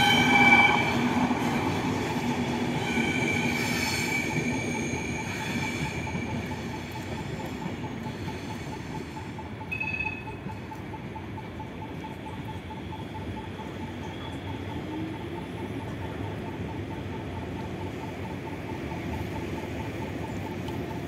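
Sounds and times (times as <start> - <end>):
high wheel squeal: 0.0 - 6.8
train wheels rumbling: 0.0 - 21.0.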